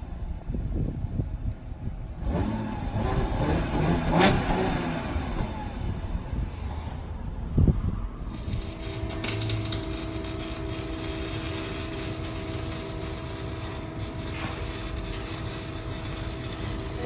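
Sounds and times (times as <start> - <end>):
engine rev: 1.9 - 7.2, 8.2 - 17.0
car engine idling: 8.2 - 17.0.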